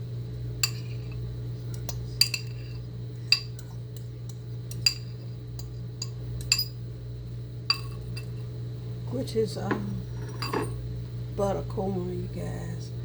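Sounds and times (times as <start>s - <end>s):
spoon clinking against bowl: 0.6s - 6.8s, 7.7s - 8.4s, 9.7s - 10.8s.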